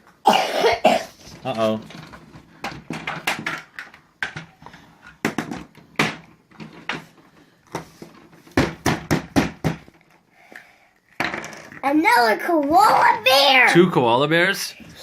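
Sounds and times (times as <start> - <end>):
plastic pieces clicking and snapping: 1.9 - 4.5.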